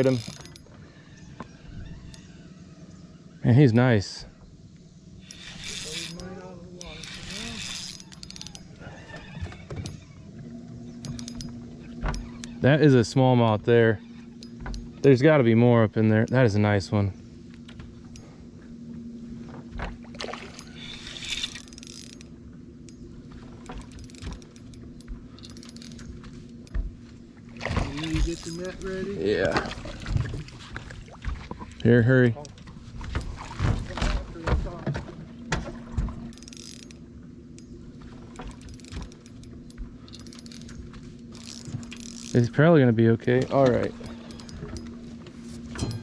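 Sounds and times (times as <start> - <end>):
steady low hum: 0.0 - 46.0
light clicks of fishing gear: 17.5 - 29.7, 35.6 - 42.5, 43.3 - 45.9
light knocks in a boat: 26.1 - 31.8, 32.4 - 36.3.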